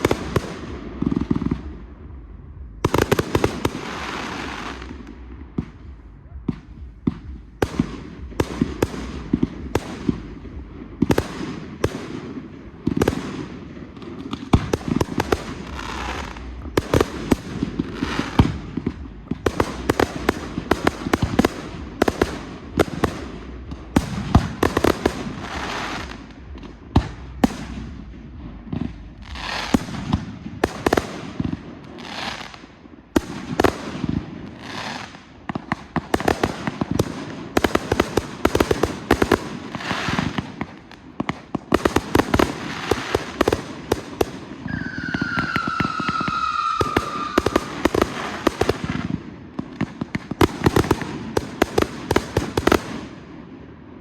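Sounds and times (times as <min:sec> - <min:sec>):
low rumble: 0:00.0 - 0:31.9
fireworks bursts and bangs: 0:00.0 - 0:54.0
fireworks crackling and hissing: 0:00.0 - 0:54.0.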